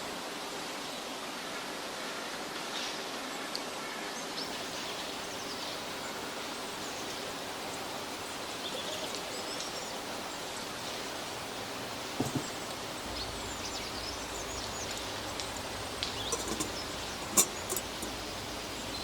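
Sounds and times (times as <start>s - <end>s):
steady forest hiss: 0.0s - 19.0s.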